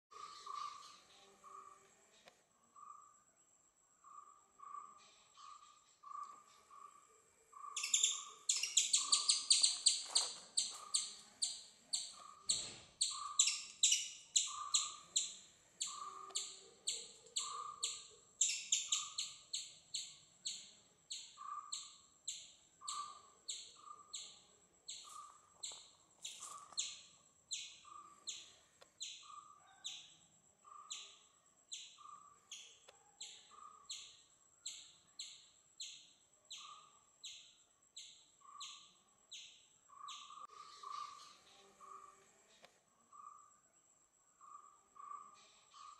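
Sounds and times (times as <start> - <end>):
high bird chirps falling in pitch: 7.8 - 11.6.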